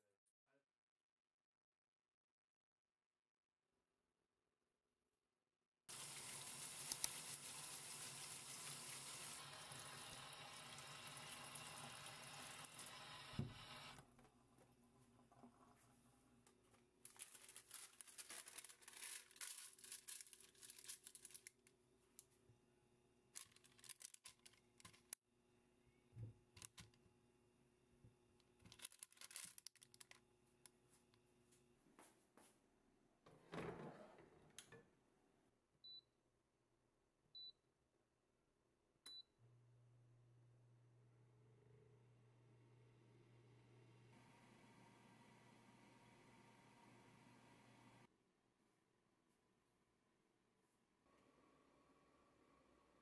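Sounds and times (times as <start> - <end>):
crinkling and rustling: 14.0 - 22.4, 23.3 - 25.2, 28.4 - 31.3.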